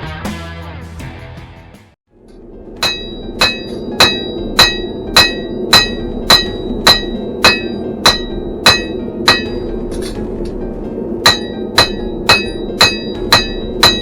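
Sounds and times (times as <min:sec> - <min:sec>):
hammer striking steel on anvil: 0:02.3 - 0:10.6, 0:11.2 - 0:14.0.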